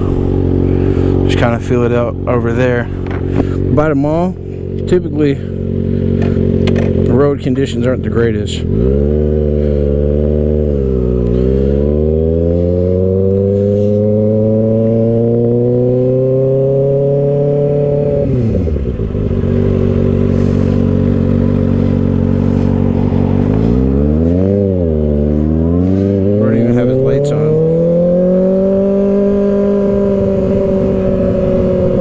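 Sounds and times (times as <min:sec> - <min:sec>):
motorcycle engine accelerating: 0:00.0 - 0:32.0.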